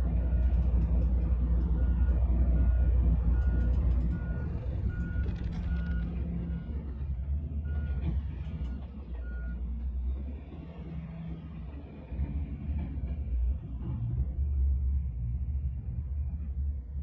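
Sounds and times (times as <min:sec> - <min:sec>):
diesel engine rumble: 0:00.0 - 0:17.0
reversing alarm beeping: 0:01.8 - 0:06.8.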